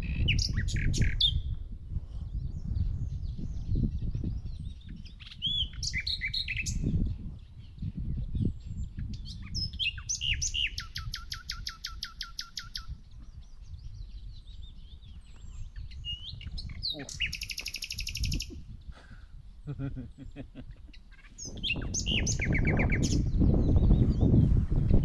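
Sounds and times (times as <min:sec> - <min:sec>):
songbirds chirping and whistling: 0:00.0 - 0:01.6, 0:02.2 - 0:25.0
fast rattling bird trill: 0:15.9 - 0:18.5, 0:21.0 - 0:24.0.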